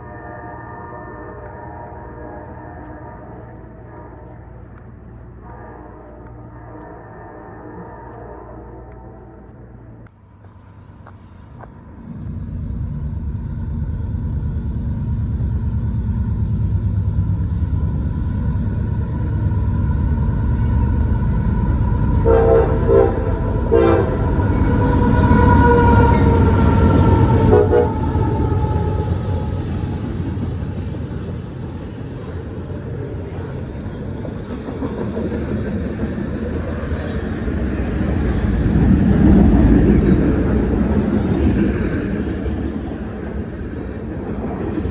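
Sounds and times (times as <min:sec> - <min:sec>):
train horn blasts: 0:00.0 - 0:09.9, 0:22.2 - 0:30.6
train rumbling by: 0:00.0 - 0:44.9.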